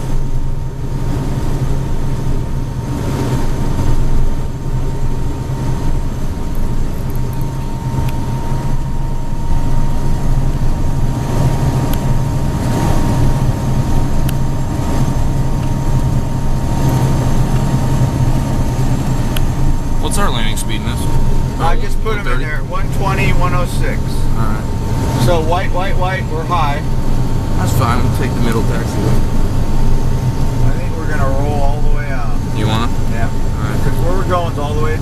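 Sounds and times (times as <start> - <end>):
jet engine drone: 0.0 - 35.0
thin steady high tone: 17.8 - 34.9.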